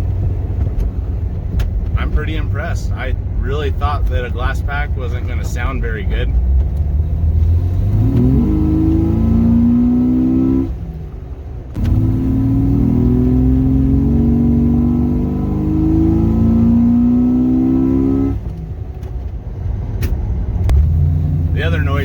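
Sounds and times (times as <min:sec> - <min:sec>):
car engine accelerating: 0:00.0 - 0:22.0
engine intake noise: 0:20.7 - 0:22.0.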